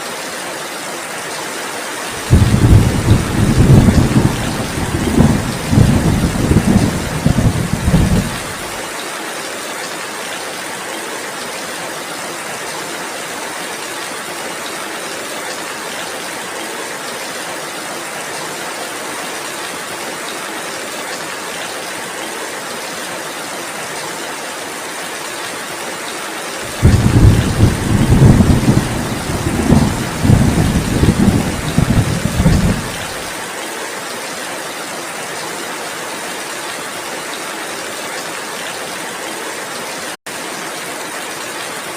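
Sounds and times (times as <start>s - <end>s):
heavy rain hissing: 2.0s - 8.9s, 26.5s - 33.6s
thunder rumbling: 2.2s - 8.7s, 26.7s - 33.3s.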